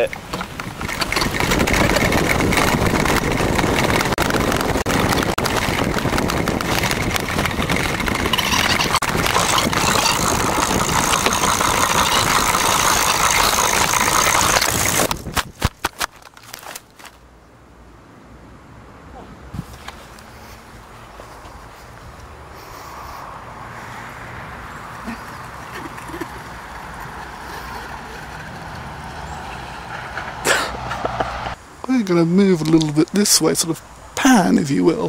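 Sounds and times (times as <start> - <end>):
go-kart rumbling and rattling: 0.0 - 17.1, 24.7 - 31.6.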